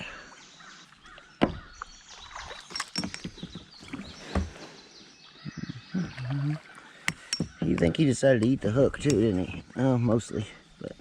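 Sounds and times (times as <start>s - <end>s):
dull thump: 1.4s - 1.7s
fishing gear knocking: 2.7s - 4.5s, 7.1s - 9.2s.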